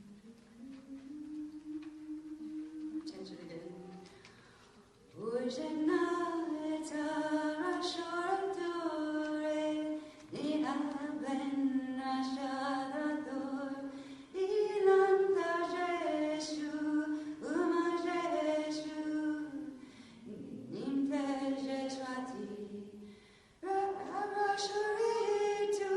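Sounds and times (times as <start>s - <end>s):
person singing unaccompanied: 0.0s - 4.1s, 23.6s - 25.9s
singer breathing: 13.9s - 14.3s, 19.8s - 20.3s, 23.0s - 23.6s.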